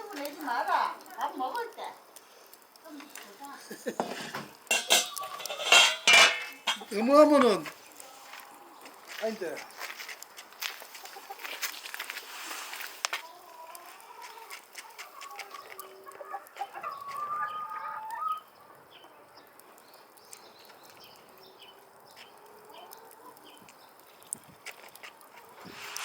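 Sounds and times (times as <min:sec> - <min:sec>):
chickens clucking and calling: 0:03.4 - 0:09.9, 0:10.6 - 0:20.2, 0:21.1 - 0:24.1.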